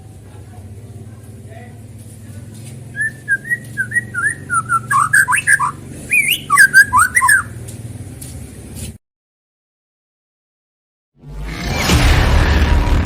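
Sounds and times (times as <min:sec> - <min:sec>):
bird singing whistled notes: 0:02.9 - 0:07.6
faint high chirps: 0:02.9 - 0:07.6.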